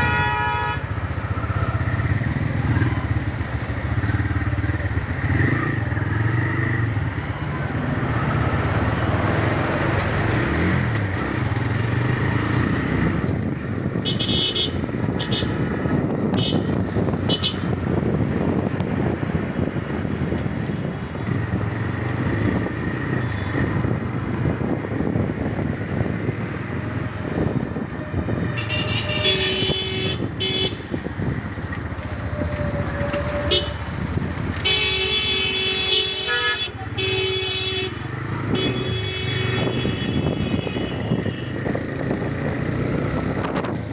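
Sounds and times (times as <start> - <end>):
vehicle horns honking: 0.0 - 1.2, 14.0 - 15.7, 16.3 - 17.8, 28.4 - 31.0, 33.2 - 34.0, 34.6 - 41.8
road and wind noise: 0.0 - 43.9.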